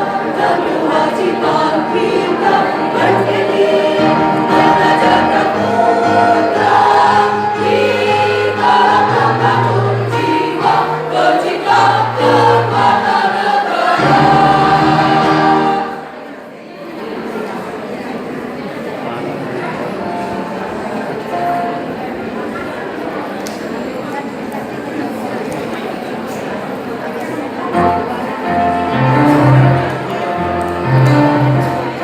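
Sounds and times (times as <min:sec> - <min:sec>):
choir singing: 0:00.0 - 0:16.4, 0:27.8 - 0:32.0.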